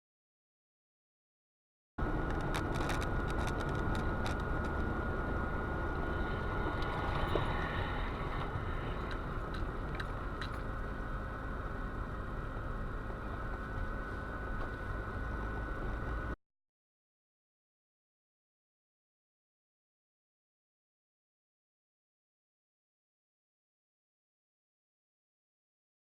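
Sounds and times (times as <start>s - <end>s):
faint constant whine: 2.0s - 16.4s
moving car rumble: 2.0s - 16.4s.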